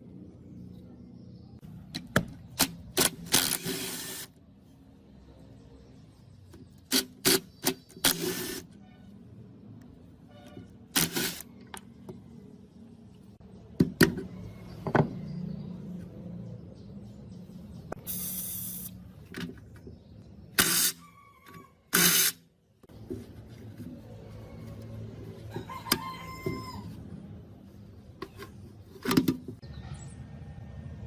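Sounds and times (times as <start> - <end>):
rough scraping or spraying: 18.0 - 19.0.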